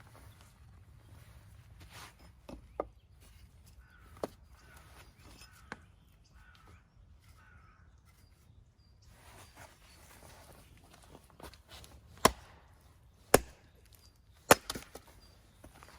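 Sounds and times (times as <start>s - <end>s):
crow cawing: 6.4s - 6.8s, 7.4s - 7.9s.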